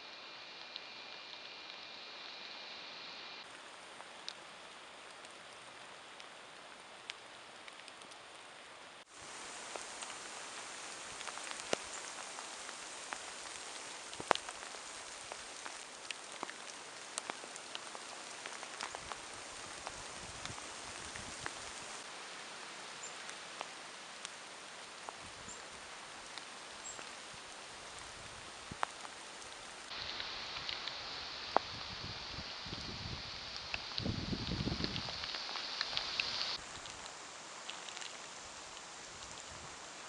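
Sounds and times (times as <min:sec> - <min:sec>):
steady rain hiss: 0:00.0 - 0:40.0
raindrops ticking close by: 0:03.4 - 0:40.0.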